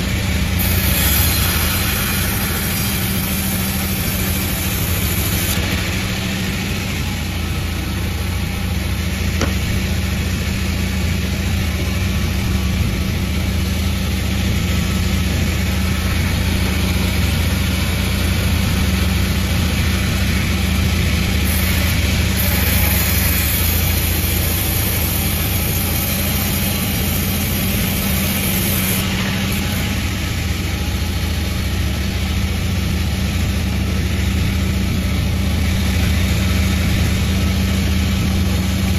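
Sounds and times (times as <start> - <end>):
sawmill humming: 0.0 - 38.9
bright hiss: 0.6 - 6.6.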